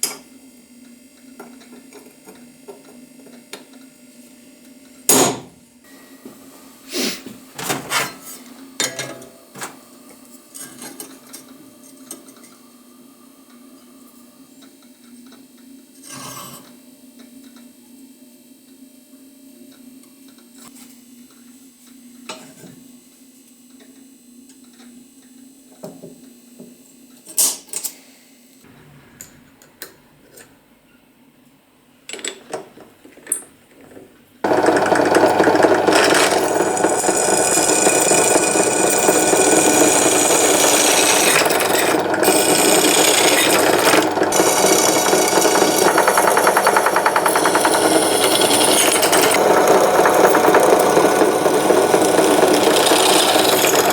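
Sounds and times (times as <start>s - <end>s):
loud power tool running: 34.4s - 53.9s.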